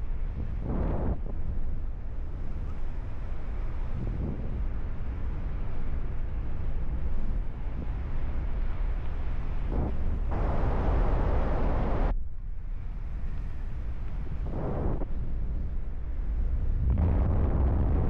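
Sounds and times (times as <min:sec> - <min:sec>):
wind buffeting microphone: 0:00.0 - 0:12.1, 0:12.8 - 0:18.0.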